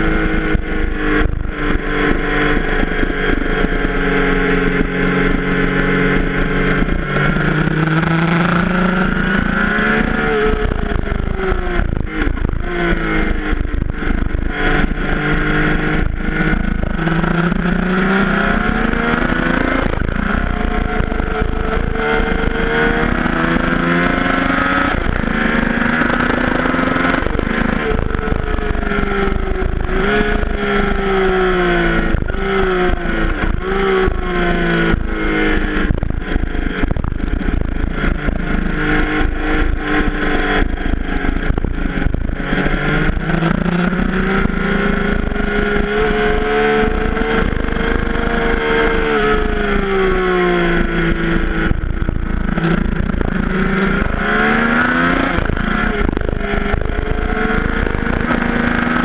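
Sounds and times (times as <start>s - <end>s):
motorcycle engine revving: 0.0s - 59.0s
wind buffeting microphone: 0.0s - 59.0s.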